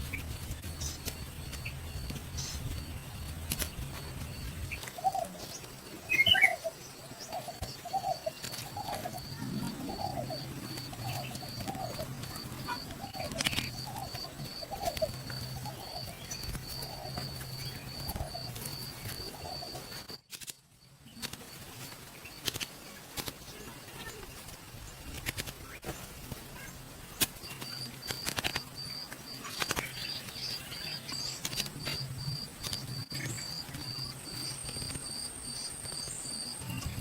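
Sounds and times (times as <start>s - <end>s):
bird chirp: 0.0s - 20.2s
bird low hooting: 6.1s - 20.0s.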